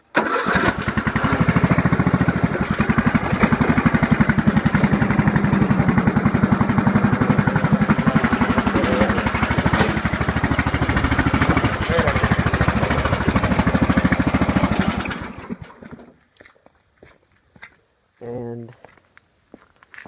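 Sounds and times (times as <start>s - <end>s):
small tractor engine running: 0.1s - 16.2s.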